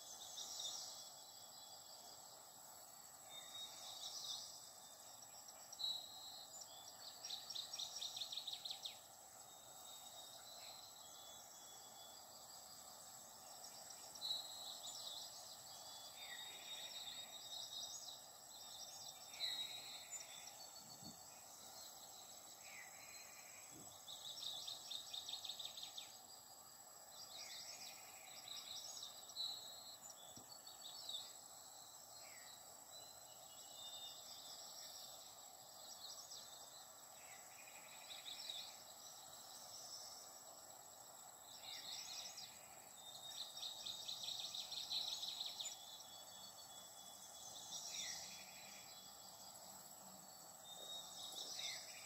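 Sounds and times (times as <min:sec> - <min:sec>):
low background hiss: 0:00.0 - 0:52.0.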